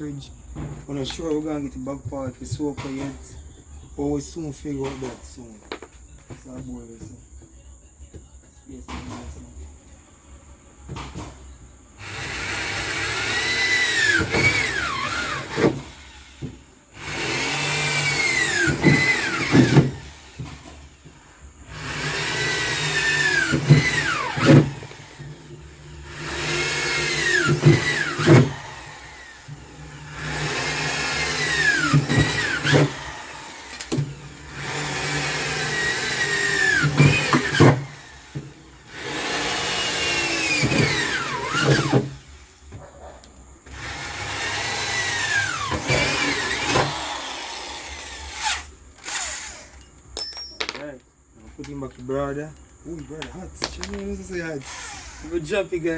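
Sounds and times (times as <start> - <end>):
electric drill boring: 12.0 - 42.7, 43.6 - 49.9, 53.8 - 55.9.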